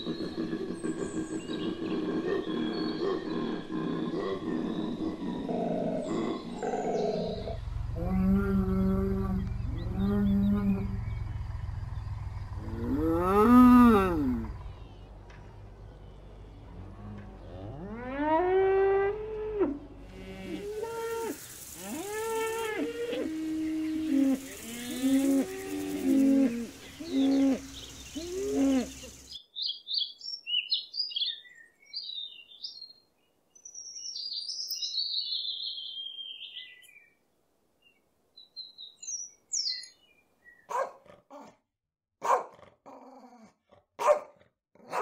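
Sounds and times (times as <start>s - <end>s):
cows mooing: 7.3s - 11.5s, 12.5s - 15.5s, 16.6s - 29.1s
robin singing: 23.4s - 37.2s, 37.8s - 40.9s
dog barking: 40.7s - 41.6s, 42.2s - 42.7s, 44.0s - 45.0s.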